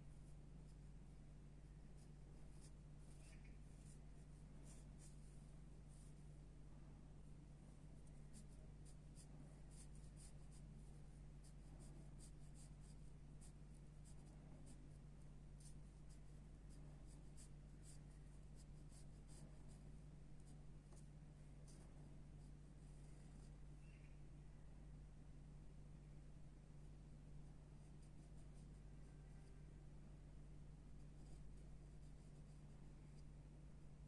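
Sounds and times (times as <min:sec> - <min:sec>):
steady low hum: 0:00.0 - 0:34.0
pencil scratching on paper: 0:02.0 - 0:06.2, 0:08.1 - 0:15.0, 0:15.6 - 0:22.5, 0:31.0 - 0:32.8.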